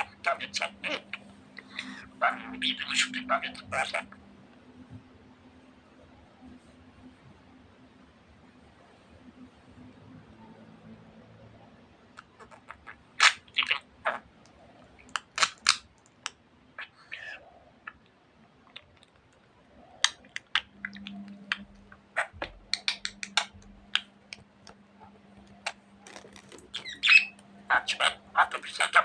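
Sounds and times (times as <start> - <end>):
budgerigar beak clicks: 20.0 - 24.4
budgerigar chirps: 26.7 - 29.0
budgerigar warbling call: 26.7 - 29.0.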